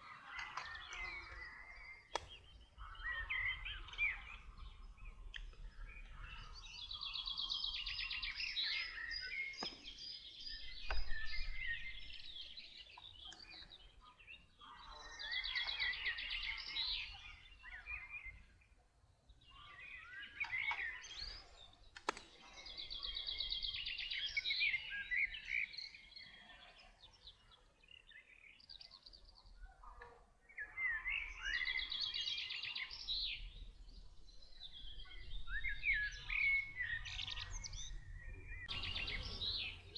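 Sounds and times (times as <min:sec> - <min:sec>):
sharp clicks: 0:02.1 - 0:02.4
songbird trilling and whistling: 0:34.4 - 0:39.9.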